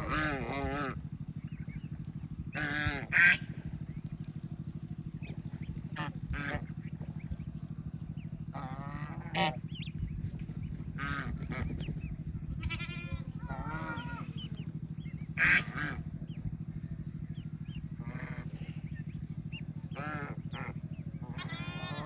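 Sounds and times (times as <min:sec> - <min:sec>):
honk-like call: 0:00.0 - 0:01.0, 0:02.5 - 0:03.6, 0:05.9 - 0:06.8, 0:08.5 - 0:09.7, 0:11.0 - 0:11.8, 0:12.6 - 0:14.5, 0:15.3 - 0:16.1, 0:19.9 - 0:22.0
ducklings peeping: 0:00.0 - 0:22.0
low buzzing hum: 0:00.0 - 0:22.0
bleat-like animal calls: 0:12.5 - 0:14.4, 0:20.0 - 0:22.0.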